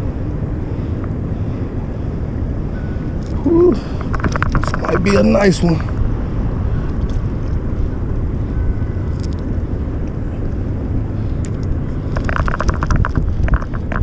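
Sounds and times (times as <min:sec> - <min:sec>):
low outdoor rumble: 0:00.0 - 0:14.0
quick run of clicks: 0:11.5 - 0:14.0.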